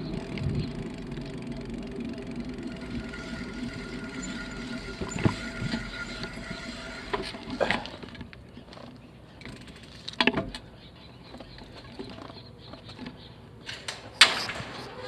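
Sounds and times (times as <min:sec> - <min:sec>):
bicycle knocks and rattles: 0:00.0 - 0:10.7
bicycle rolling over rough path: 0:00.0 - 0:15.0.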